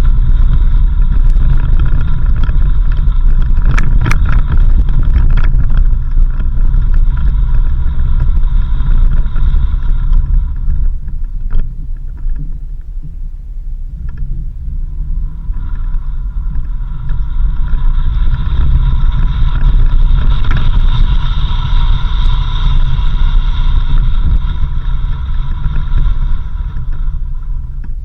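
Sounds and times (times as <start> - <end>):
off-road vehicle engine rumble: 0.0 - 28.0
clicks and rattles: 0.3 - 13.2.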